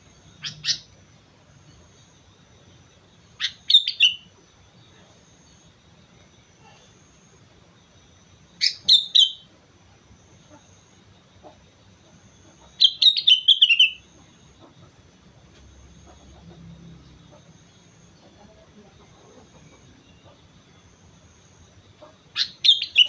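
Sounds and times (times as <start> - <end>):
bulbul singing: 0.0 - 5.8, 7.8 - 9.5, 11.4 - 14.8, 15.8 - 23.0.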